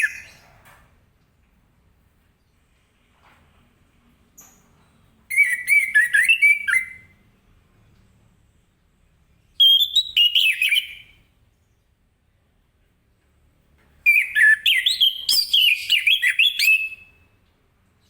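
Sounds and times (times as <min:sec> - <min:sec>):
thrush singing whistled notes: 0:00.0 - 0:00.4, 0:05.3 - 0:07.2, 0:09.6 - 0:11.2, 0:14.1 - 0:17.3.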